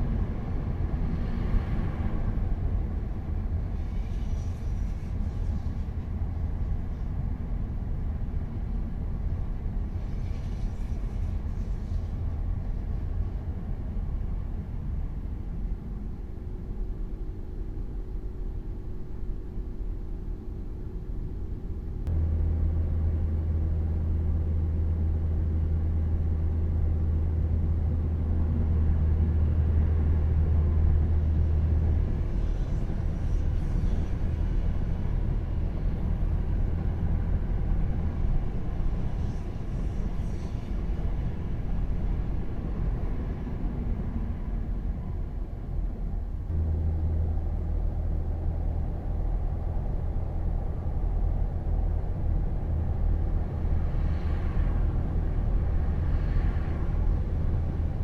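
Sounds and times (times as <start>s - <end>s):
vehicle rumble: 0.0s - 58.0s.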